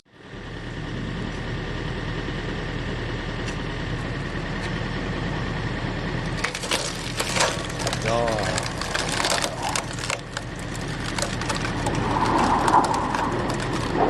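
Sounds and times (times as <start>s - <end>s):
log splitter power unit running: 0.1s - 14.0s
wood cracking: 6.3s - 14.0s.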